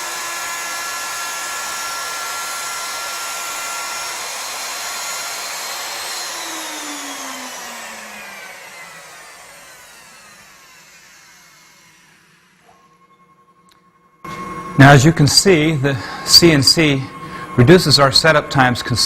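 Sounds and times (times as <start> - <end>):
router motor whining: 0.0 - 13.0.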